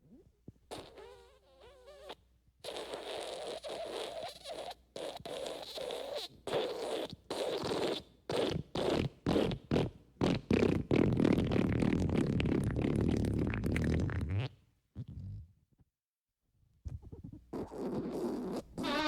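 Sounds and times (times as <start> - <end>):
fart sounds: 0.1 - 15.5, 16.9 - 19.0.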